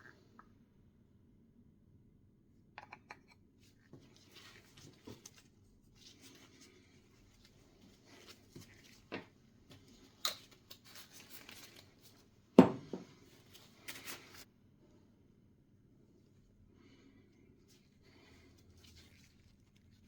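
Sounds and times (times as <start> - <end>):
loud knock on workbench: 12.6 - 13.0.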